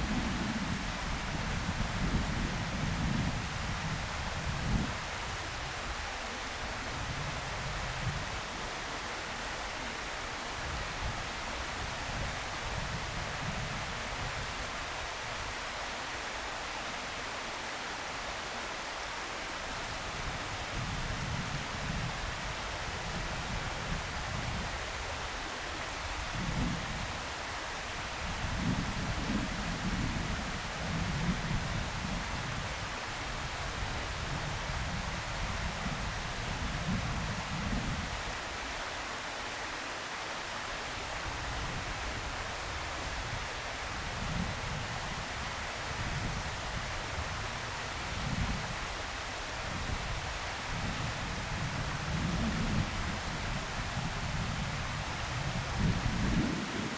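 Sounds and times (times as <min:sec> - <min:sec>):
rushing outdoor noise: 0:00.0 - 0:56.9
wind buffeting microphone: 0:28.0 - 0:38.4, 0:41.2 - 0:56.9.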